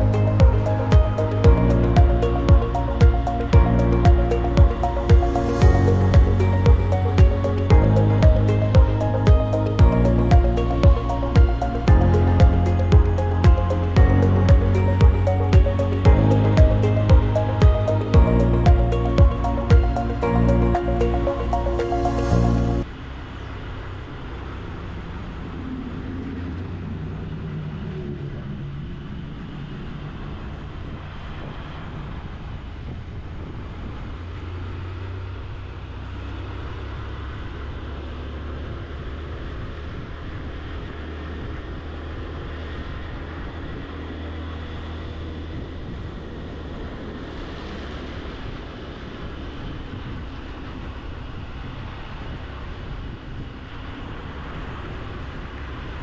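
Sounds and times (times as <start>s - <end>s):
wind noise on microphone: 24.7s - 56.0s.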